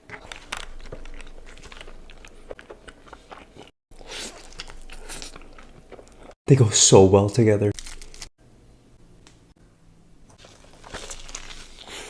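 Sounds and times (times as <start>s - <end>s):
person biting and chewing food: 0.0s - 6.4s, 10.4s - 12.0s.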